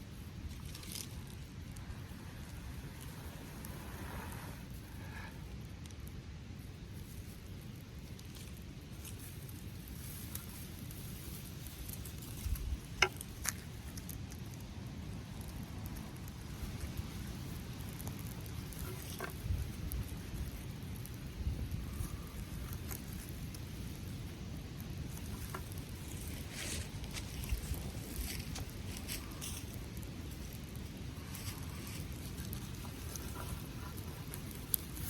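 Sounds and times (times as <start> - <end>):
small fire crackling: 0.0 - 35.0
sharp pops of fire: 9.5 - 35.0.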